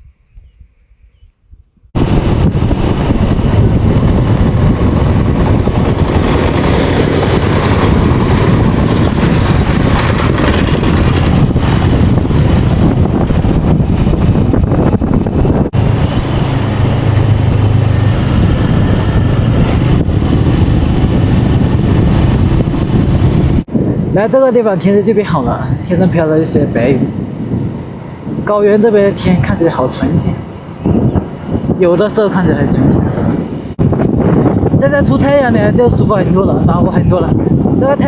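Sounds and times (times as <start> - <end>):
wind noise on microphone: 0.0 - 38.0
motorcycle engine running: 2.0 - 23.6.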